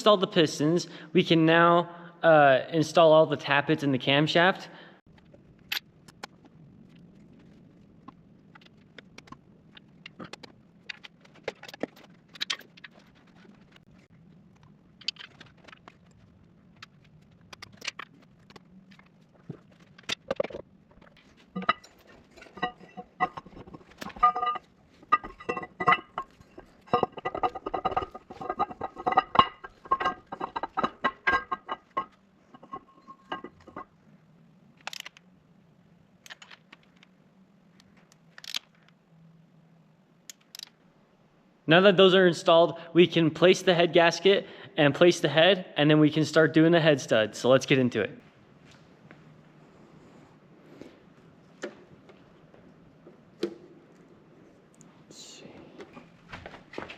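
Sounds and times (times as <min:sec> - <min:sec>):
metal engine parts clicking: 0:19.8 - 0:33.9, 0:34.8 - 0:35.2, 0:38.1 - 0:38.9, 0:40.3 - 0:40.8.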